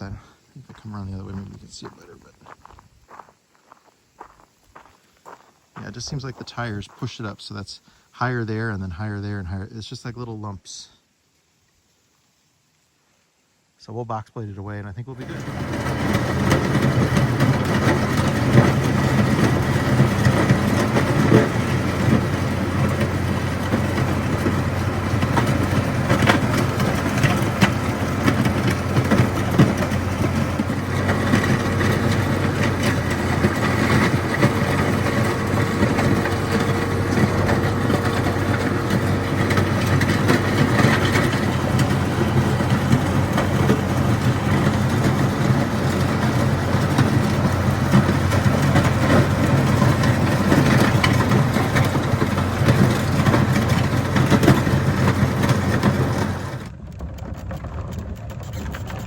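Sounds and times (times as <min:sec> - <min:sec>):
engine running steadily: 0:00.0 - 0:02.3, 0:15.1 - 0:59.0
crackles and clicks: 0:15.3 - 0:59.0.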